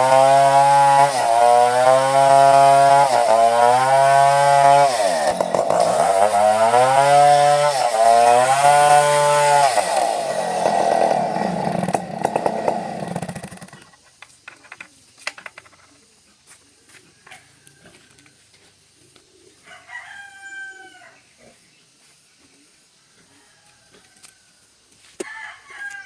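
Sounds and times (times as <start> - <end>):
chainsaw running: 0.0 - 14.0.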